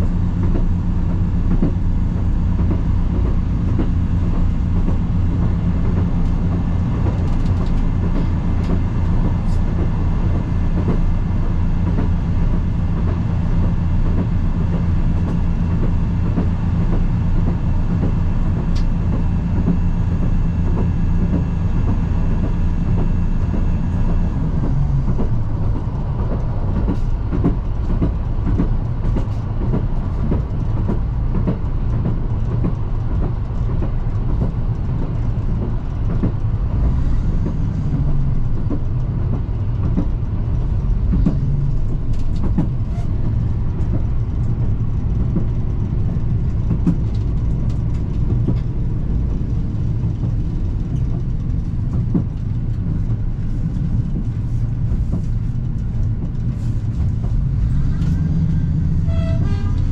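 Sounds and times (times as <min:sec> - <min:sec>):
railcar running rumble: 0:00.0 - 0:59.9.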